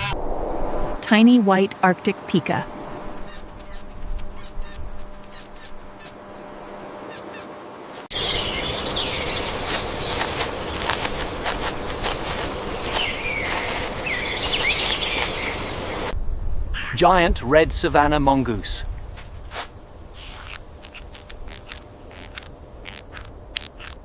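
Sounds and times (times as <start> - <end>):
short high squeaks: 3.2 - 6.4, 7.0 - 7.5, 20.2 - 24.0
birds chirping: 3.2 - 16.1.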